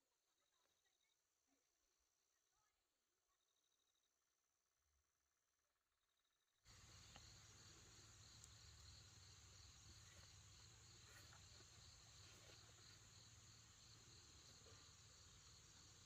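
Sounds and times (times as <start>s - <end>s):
insect chorus pulsing trills: 6.7s - 16.0s.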